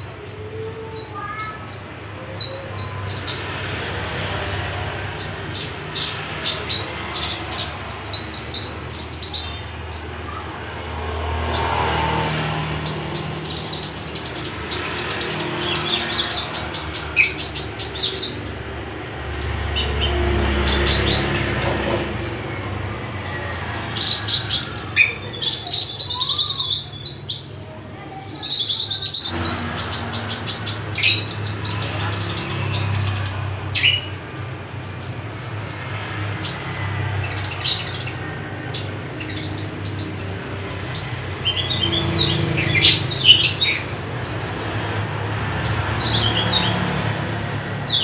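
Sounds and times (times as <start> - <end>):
caged birds chirping: 0.0 - 48.0.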